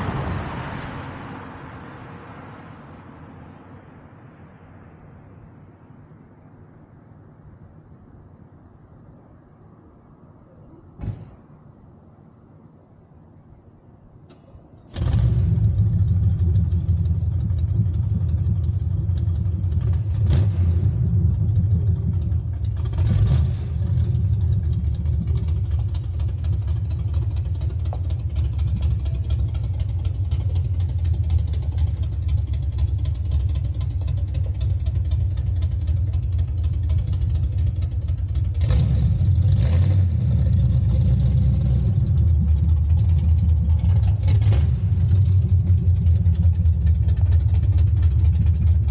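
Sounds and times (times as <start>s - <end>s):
old truck engine idling: 15.7s - 20.3s, 20.9s - 23.2s, 23.8s - 39.5s, 41.8s - 48.9s.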